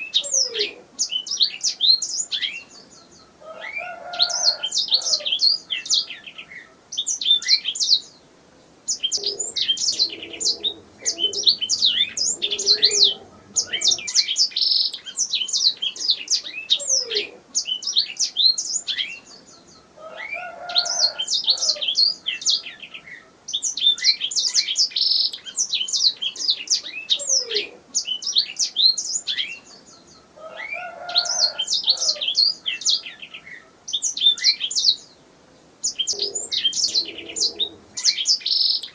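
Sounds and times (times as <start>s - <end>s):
canary singing: 8.9s - 35.1s, 35.8s - 38.9s.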